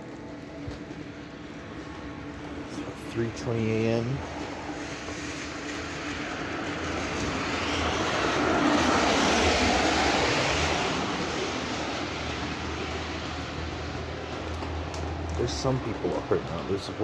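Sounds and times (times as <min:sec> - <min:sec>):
passing vehicle rushing: 0:04.2 - 0:14.4.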